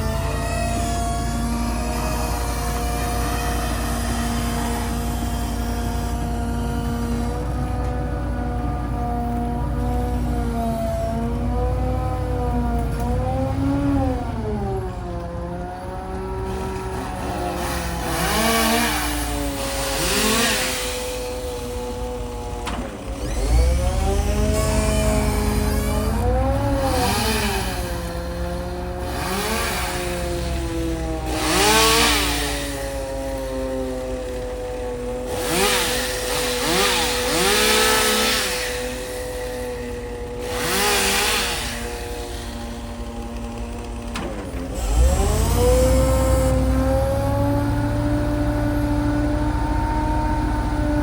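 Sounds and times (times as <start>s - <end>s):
engine running steadily: 0.0s - 51.0s
chainsaw revving: 15.8s - 51.0s.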